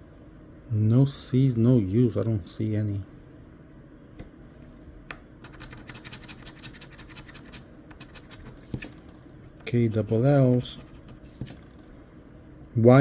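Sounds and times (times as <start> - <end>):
lottery ticket being scratched: 5.4 - 11.9.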